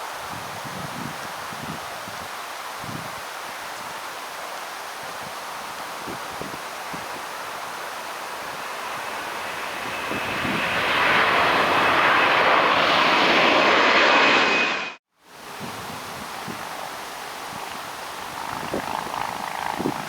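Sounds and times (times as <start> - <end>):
wind noise on microphone: 0.2 - 4.0, 6.0 - 7.3, 8.4 - 13.0, 15.4 - 20.0
airliner engines passing: 5.6 - 15.0, 16.0 - 20.0.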